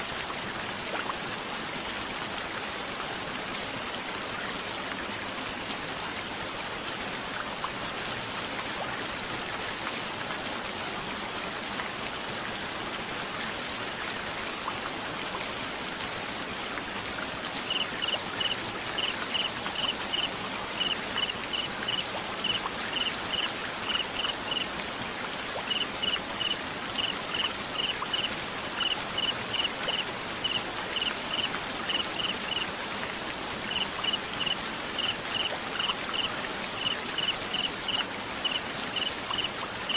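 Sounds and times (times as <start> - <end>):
steady rain: 0.0 - 39.9
cricket chirping: 17.7 - 24.6, 25.7 - 32.7, 33.7 - 39.9.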